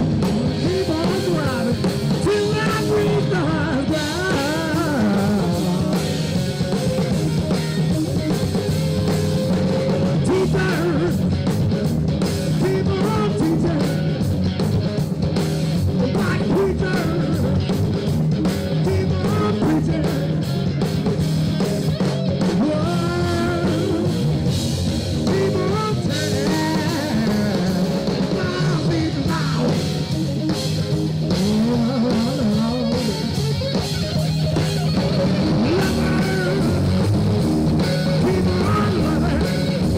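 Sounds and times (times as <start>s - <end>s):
person singing: 0.0s - 7.1s, 9.3s - 11.3s, 12.5s - 14.1s, 16.0s - 17.6s, 18.8s - 20.5s, 22.5s - 24.4s, 25.2s - 30.1s, 31.3s - 33.5s, 35.2s - 37.1s, 37.8s - 39.9s
rock band playing: 0.0s - 39.9s.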